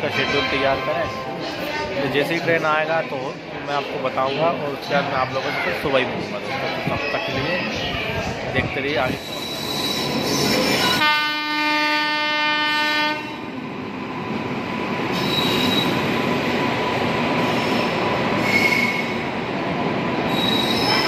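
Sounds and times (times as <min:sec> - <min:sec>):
train rolling past: 0:00.0 - 0:21.0
high wheel squeals: 0:09.1 - 0:11.0, 0:15.1 - 0:16.1, 0:17.5 - 0:19.2, 0:20.3 - 0:21.0
train horn blast: 0:11.0 - 0:13.5.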